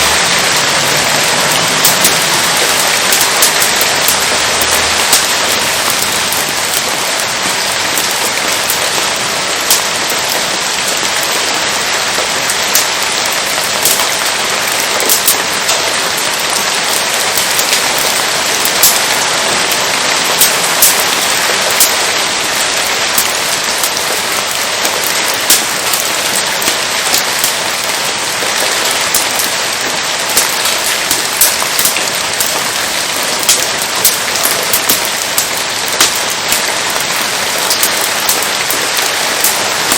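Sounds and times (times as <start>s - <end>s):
steady rain hiss: 0.0s - 39.9s
sharp pops and ticks: 0.9s - 10.0s, 12.7s - 15.9s, 30.3s - 39.7s.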